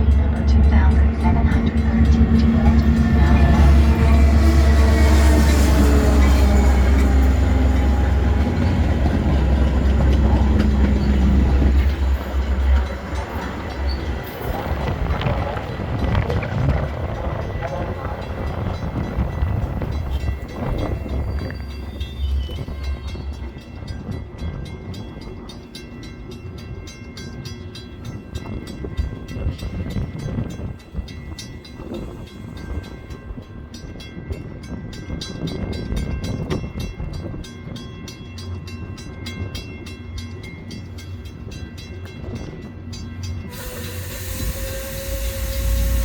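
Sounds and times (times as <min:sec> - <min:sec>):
train rumbling past: 0:00.0 - 0:46.0
loud hiss: 0:43.5 - 0:46.0.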